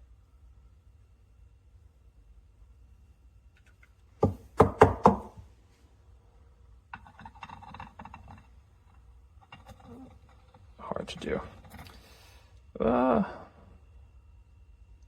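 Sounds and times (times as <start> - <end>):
hard object knocking: 4.2 - 5.4.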